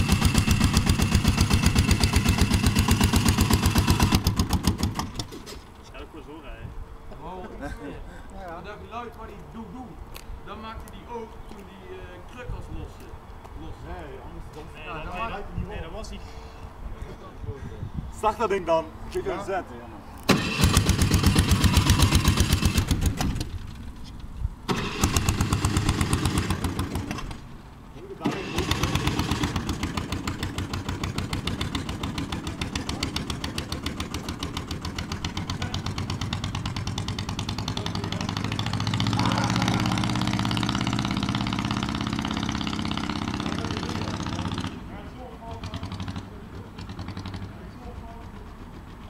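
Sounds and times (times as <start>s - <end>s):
small engine running in pulses: 28.2s - 44.8s.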